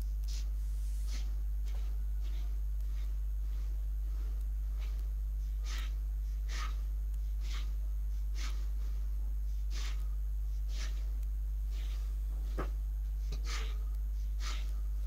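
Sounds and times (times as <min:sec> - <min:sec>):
low electrical mains hum: 0:00.0 - 0:15.0
short soft hissing sounds: 0:00.3 - 0:01.4.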